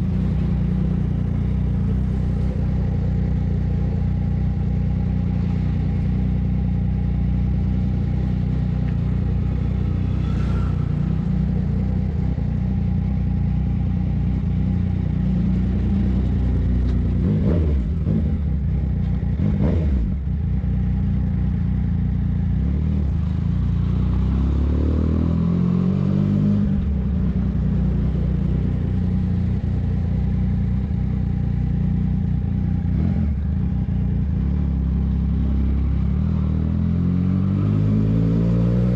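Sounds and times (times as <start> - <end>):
motorcycle engine revving while riding: 0.0 - 38.9.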